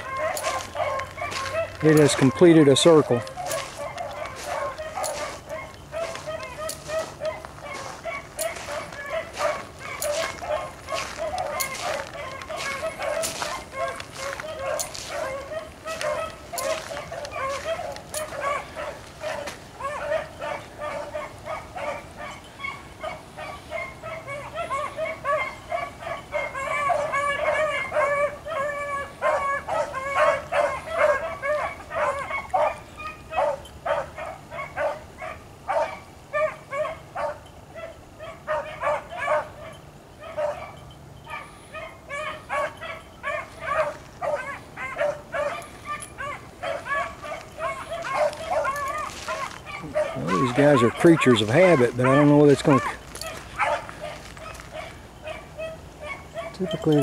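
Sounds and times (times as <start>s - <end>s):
hounds baying: 0.0s - 57.0s.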